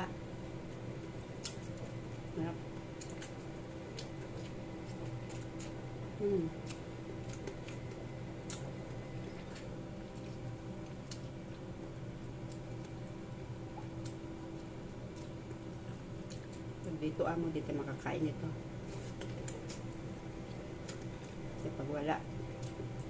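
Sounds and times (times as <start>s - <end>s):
steady low hum: 0.0s - 23.0s
chewing and lip smacking: 3.0s - 5.8s, 6.5s - 11.7s, 12.4s - 16.8s, 19.1s - 21.5s.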